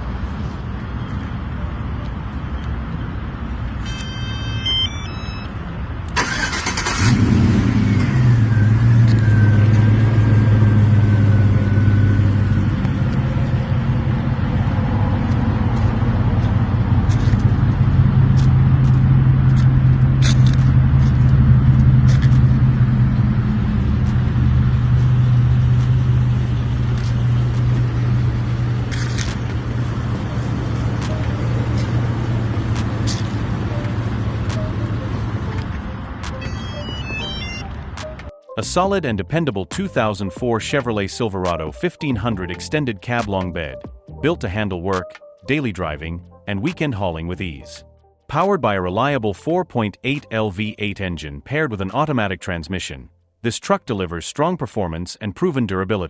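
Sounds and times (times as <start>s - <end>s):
electronic chime tones: 3.9s - 5.6s, 36.4s - 37.8s
engine cranking and idling: 6.1s - 35.7s.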